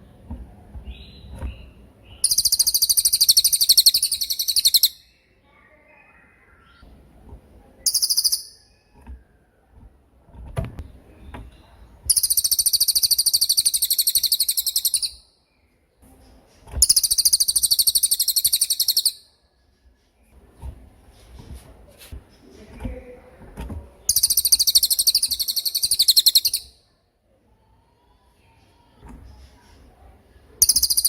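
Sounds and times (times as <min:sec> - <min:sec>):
songbird high-pitched trills: 0:02.1 - 0:05.2, 0:07.8 - 0:08.9, 0:12.1 - 0:15.3, 0:16.8 - 0:19.3, 0:24.1 - 0:26.8, 0:30.6 - 0:31.0.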